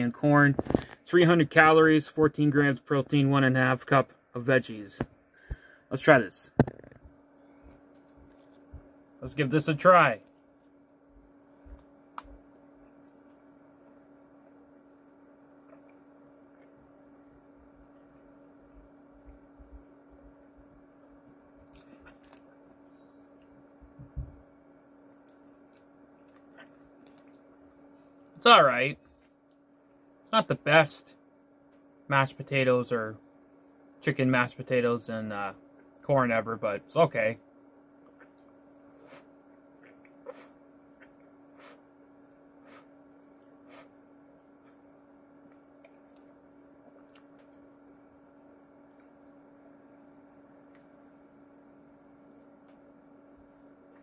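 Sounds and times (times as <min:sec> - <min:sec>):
steady low hum: 0:00.0 - 0:54.0
person chewing food: 0:21.6 - 0:23.6, 0:25.1 - 0:27.6, 0:37.9 - 0:47.7.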